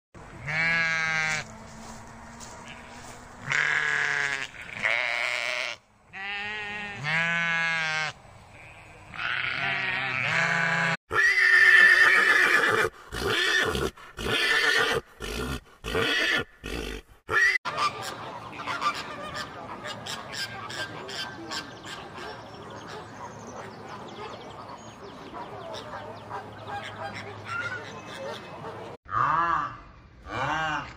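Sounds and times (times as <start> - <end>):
sheep bleating: 0.4 - 1.5, 2.4 - 12.3
flamingos honking: 17.3 - 23.0, 25.3 - 29.0.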